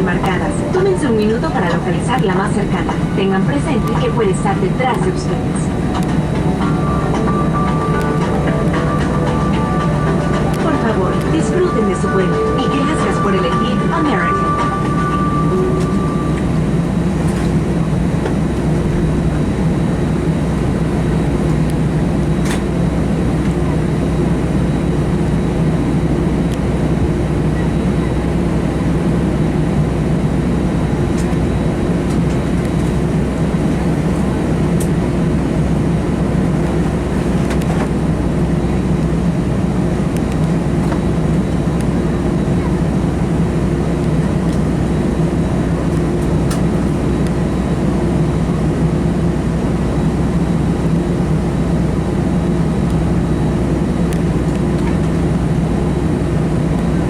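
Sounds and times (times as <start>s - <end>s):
airplane cabin drone: 0.0s - 57.0s.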